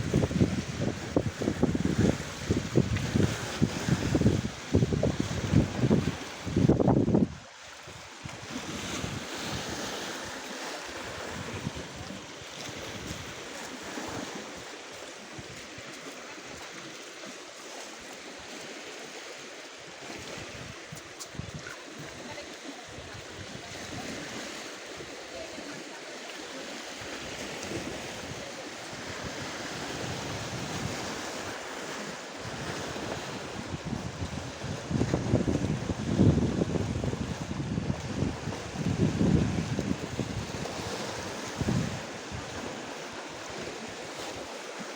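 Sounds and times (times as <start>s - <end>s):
wind buffeting microphone: 0.0s - 10.2s, 10.9s - 14.7s, 20.2s - 25.3s, 27.0s - 42.9s
surf washing on shore: 0.0s - 44.9s.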